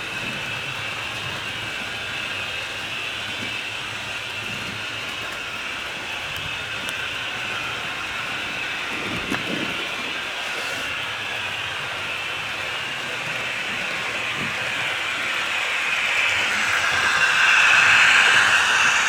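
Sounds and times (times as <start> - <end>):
model train motor whirring: 0.0 - 19.0.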